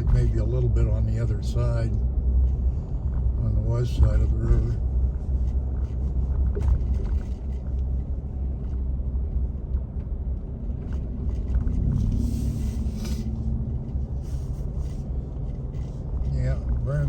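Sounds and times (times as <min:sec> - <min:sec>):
car engine and road rumble: 0:00.0 - 0:17.0
road hiss: 0:12.0 - 0:13.5.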